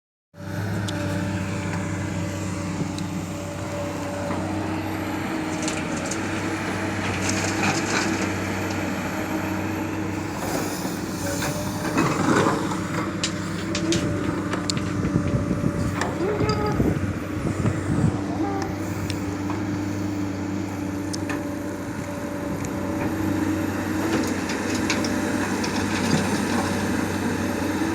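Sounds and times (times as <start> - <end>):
diesel engine running: 0.4 - 27.9.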